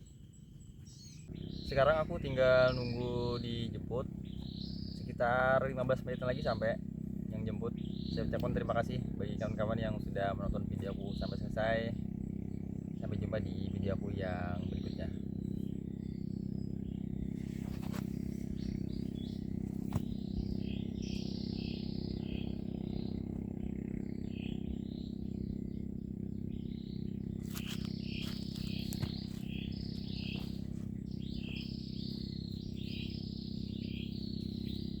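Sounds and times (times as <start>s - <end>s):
birds chirping: 0.0s - 35.0s
low background rumble: 0.0s - 35.0s.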